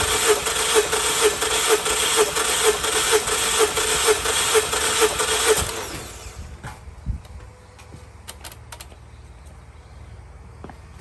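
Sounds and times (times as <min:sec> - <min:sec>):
car engine cranking on starter: 0:00.0 - 0:06.4.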